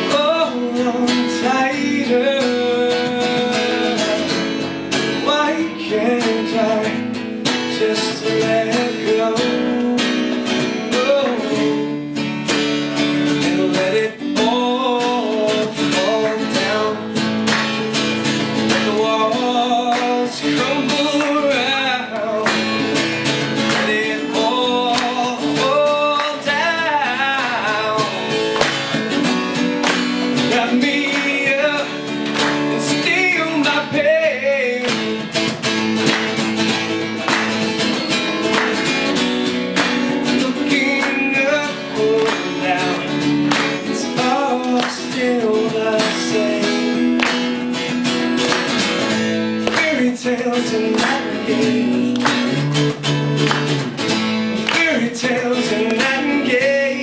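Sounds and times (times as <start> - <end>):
person singing: 0.0 - 12.2, 13.2 - 17.2, 18.6 - 28.6, 30.3 - 35.4, 40.1 - 47.6, 49.1 - 52.7, 54.6 - 57.0
acoustic guitar strumming: 0.0 - 57.0.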